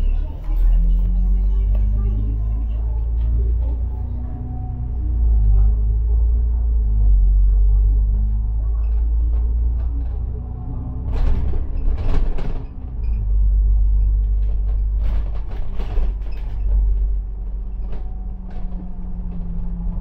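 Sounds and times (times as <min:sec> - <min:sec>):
bus engine rumble: 0:00.0 - 0:20.0
rattling and knocks: 0:14.1 - 0:20.0.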